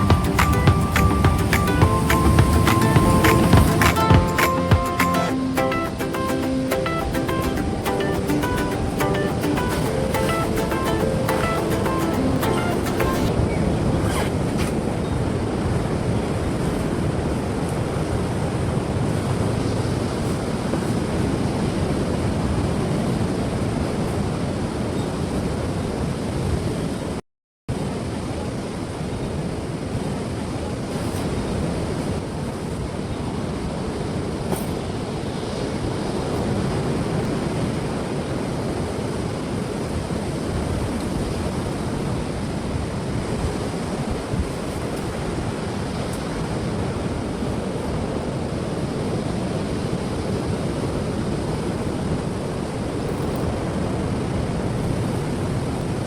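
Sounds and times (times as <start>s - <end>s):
ocean surf washing onto beach: 0.0s - 13.9s.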